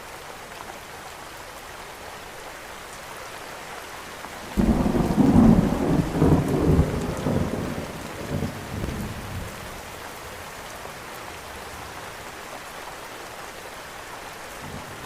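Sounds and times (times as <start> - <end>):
rain hiss: 0.0 - 15.0
thunder rumbling: 4.6 - 9.6.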